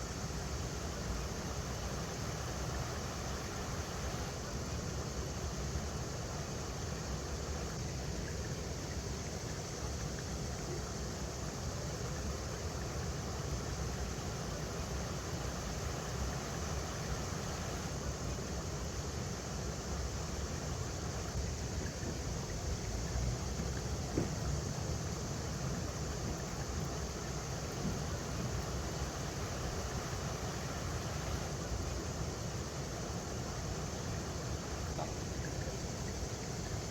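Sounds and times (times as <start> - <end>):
water rushing over rocks: 20.7 - 36.9.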